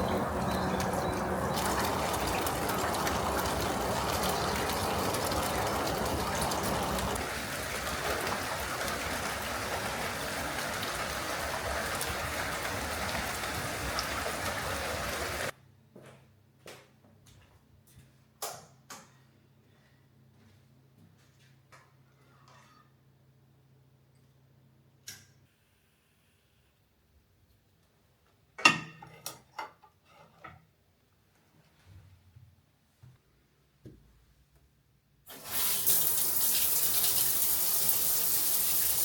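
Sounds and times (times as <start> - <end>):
water running and splashing: 0.0 - 15.5, 35.3 - 39.0.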